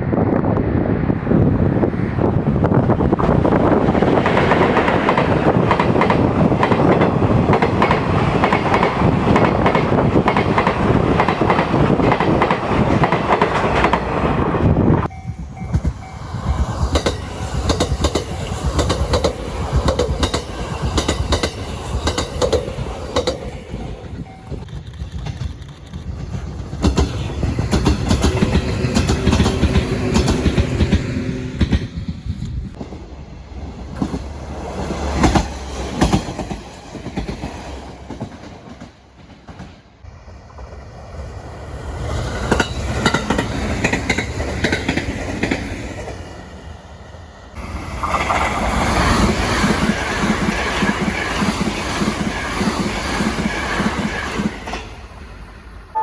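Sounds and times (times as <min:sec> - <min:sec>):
train wheels clattering over rail joints: 0:15.5 - 0:23.8, 0:24.6 - 0:33.0, 0:33.9 - 0:39.9, 0:42.2 - 0:46.2.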